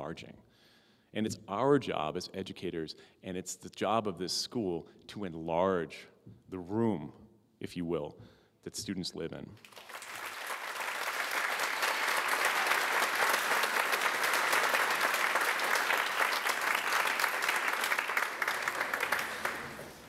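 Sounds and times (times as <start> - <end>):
audience applause: 9.6 - 20.0.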